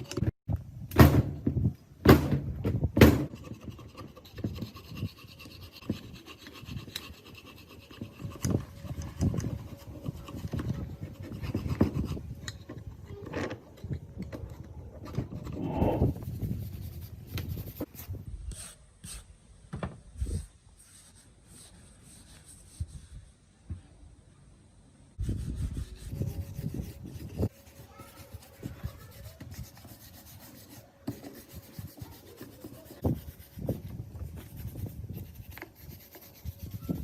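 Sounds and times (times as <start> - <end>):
hand scraping on metal: 3.3 - 19.3, 25.2 - 37.0.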